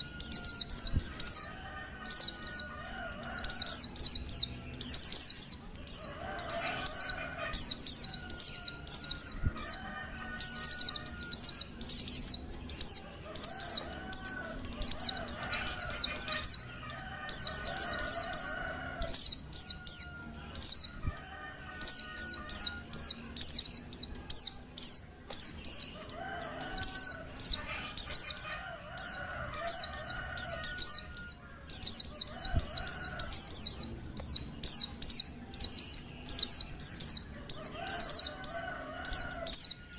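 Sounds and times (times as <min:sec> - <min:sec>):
bird chirping: 0:00.0 - 0:39.9
faint lower bird calls: 0:00.0 - 0:39.9.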